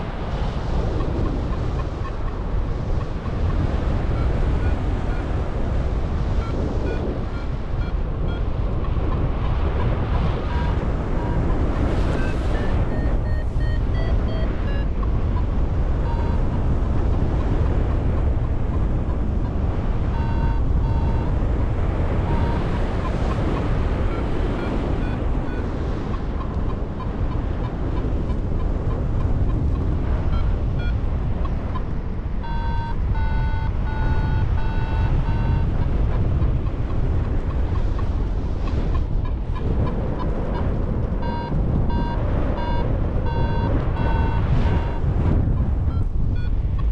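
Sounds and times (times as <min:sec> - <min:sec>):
wind rushing over microphone: 0:00.0 - 0:46.9
variometer electronic beeps: 0:01.0 - 0:05.4, 0:06.1 - 0:45.1, 0:45.9 - 0:46.9.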